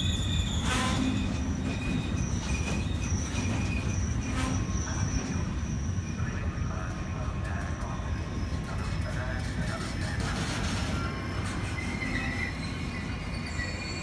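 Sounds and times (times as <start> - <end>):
train rumble: 0.0 - 14.0
train wheels squealing: 0.0 - 14.0.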